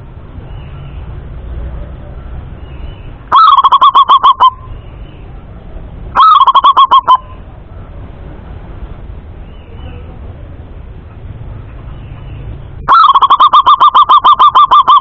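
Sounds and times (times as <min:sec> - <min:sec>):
dove staccato cooing: 0:03.3 - 0:04.7, 0:06.2 - 0:07.3, 0:12.8 - 0:15.0.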